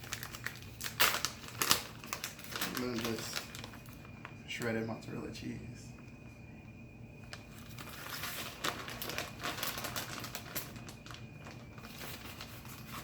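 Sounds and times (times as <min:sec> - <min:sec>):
shredded cheese crinkling by hand: 0:00.0 - 0:05.0, 0:07.2 - 0:13.0.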